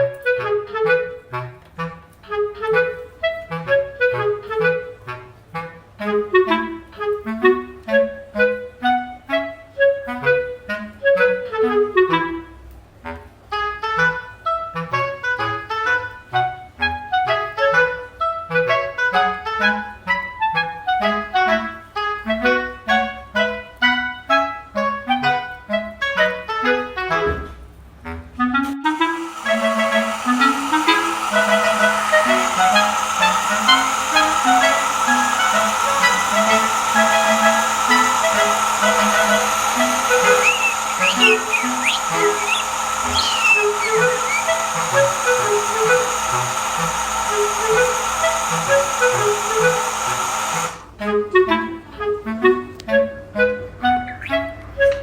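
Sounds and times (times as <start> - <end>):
fast background music: 28.9 - 50.8.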